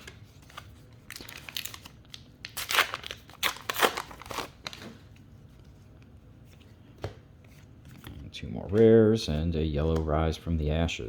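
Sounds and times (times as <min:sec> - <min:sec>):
cards and foil pack crinkling: 0:00.0 - 0:05.0.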